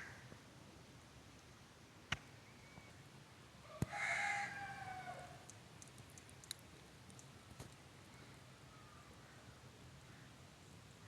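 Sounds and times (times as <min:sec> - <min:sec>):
rooster crowing: 0:03.9 - 0:05.4.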